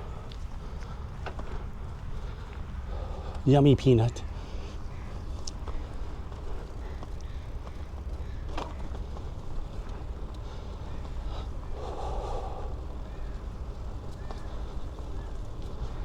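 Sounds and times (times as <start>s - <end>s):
bike rolling rumble: 0.0s - 16.0s
heavy breath out: 2.3s - 3.5s, 10.4s - 12.9s.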